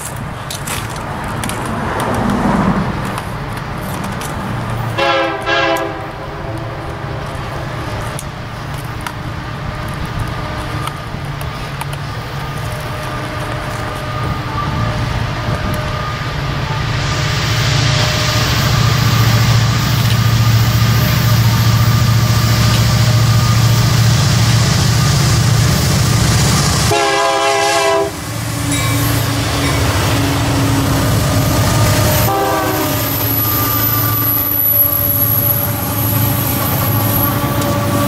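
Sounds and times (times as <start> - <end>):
approaching train rumble: 0.0 - 38.0
diesel locomotive horn blasts: 4.9 - 8.2, 12.7 - 17.0, 26.4 - 38.0.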